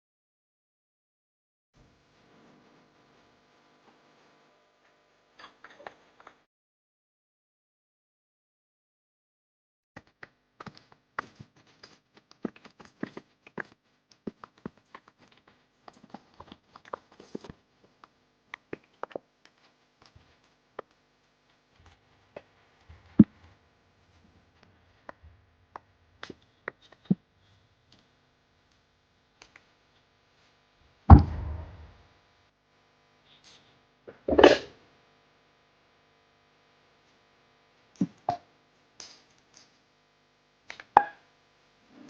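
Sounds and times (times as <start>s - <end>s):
heavy thud with rushing tail: 31.1s - 31.9s.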